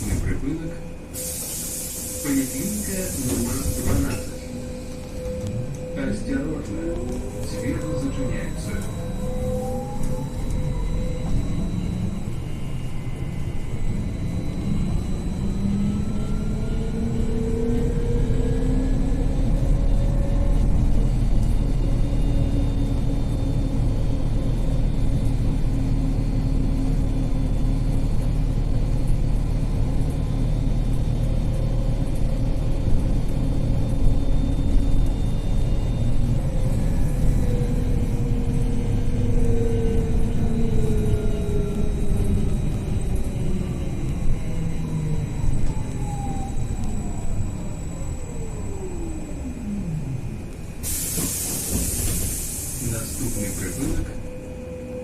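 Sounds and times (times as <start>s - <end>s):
electric traction drive whine: 1.8s - 51.0s.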